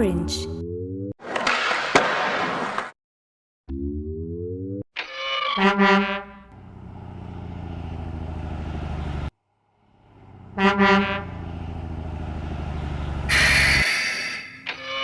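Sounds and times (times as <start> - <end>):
truck horn double honk: 5.6 - 6.5, 10.4 - 11.6
truck engine running: 6.4 - 13.8.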